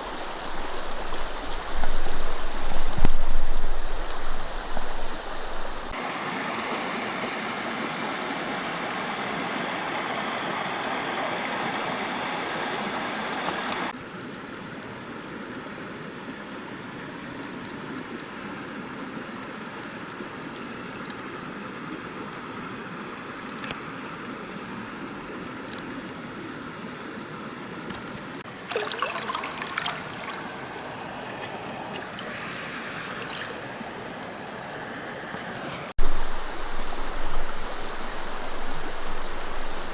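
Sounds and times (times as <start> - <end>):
mountain stream rushing: 0.0 - 14.0, 35.5 - 39.9.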